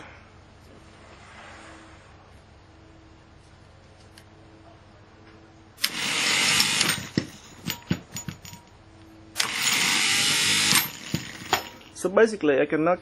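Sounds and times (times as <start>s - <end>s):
electric mower motor running: 5.8s - 7.3s, 9.4s - 11.8s.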